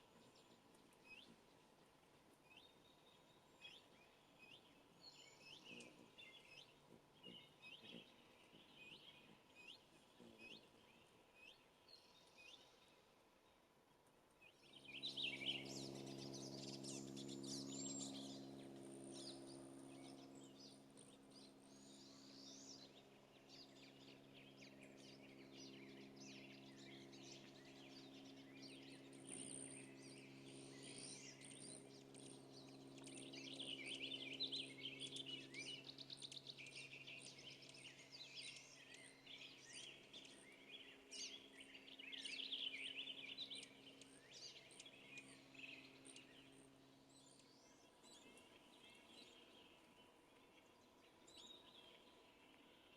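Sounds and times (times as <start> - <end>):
songbirds singing and chirping: 0.0 - 52.9
steady low hum: 0.0 - 52.9.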